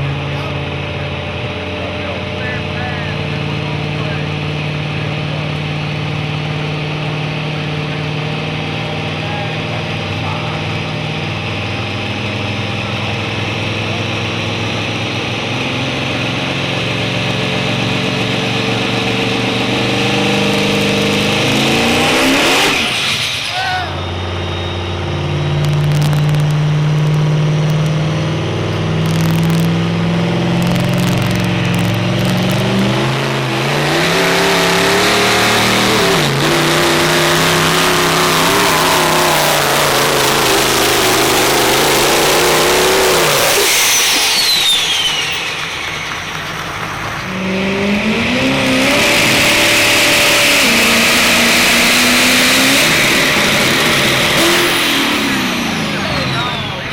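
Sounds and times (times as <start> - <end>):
diesel truck engine revving: 0.0 - 56.9
high whistle falling in pitch: 43.7 - 46.3.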